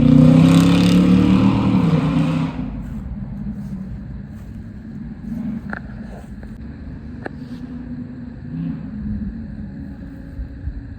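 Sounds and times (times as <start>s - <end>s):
vehicle engine revving: 0.0s - 10.5s.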